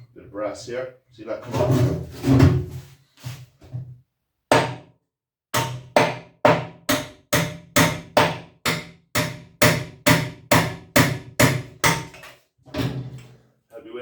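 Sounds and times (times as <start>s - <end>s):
hammer striking metal tank: 5.6s - 12.3s.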